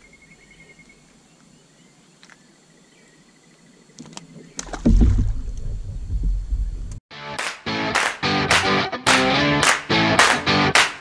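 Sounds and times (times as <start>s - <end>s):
open-water ambience: 3.2s - 7.0s
microphone handling noise: 4.4s - 7.0s.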